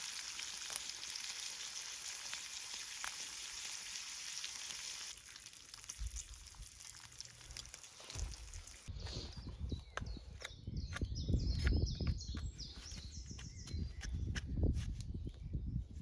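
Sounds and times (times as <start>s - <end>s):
food sizzling in a frying pan: 0.0s - 5.9s.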